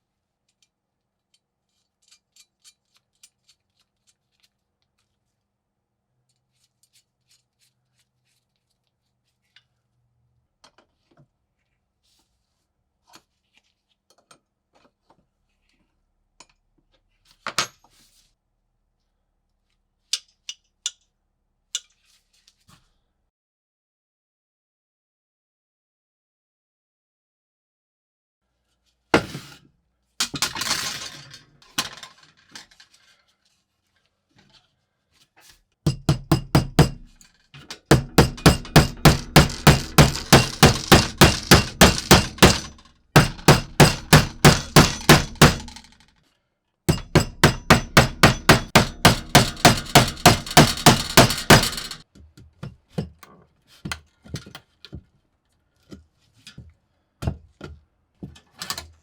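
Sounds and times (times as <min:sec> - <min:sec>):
hammer striking metal: 0:35.9 - 0:37.2, 0:37.9 - 0:46.0, 0:46.9 - 0:52.0.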